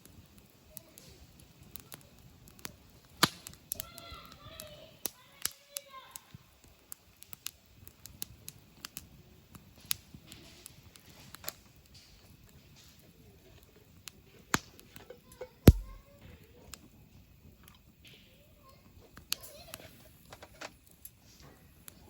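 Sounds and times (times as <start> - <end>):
campfire crackling: 0.0 - 22.0
loud crack with low thump: 15.7 - 16.0.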